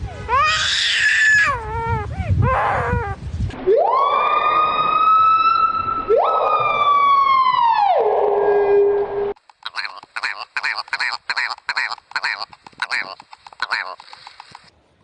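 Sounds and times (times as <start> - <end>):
bird calling: 9.4 - 14.7.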